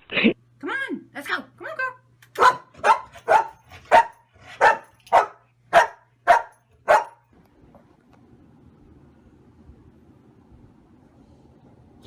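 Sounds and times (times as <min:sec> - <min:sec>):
dog barking: 0:02.4 - 0:07.2.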